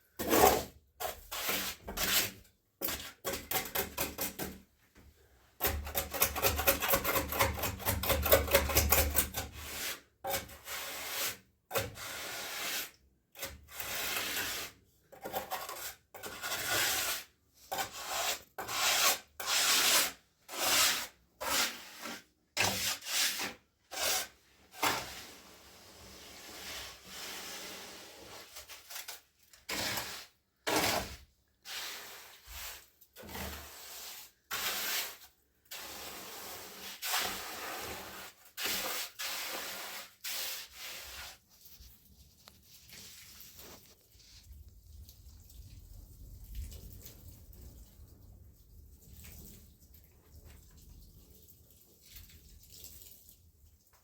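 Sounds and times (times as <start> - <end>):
hand tool scraping hard surface: 0.2 - 4.6, 5.6 - 41.4.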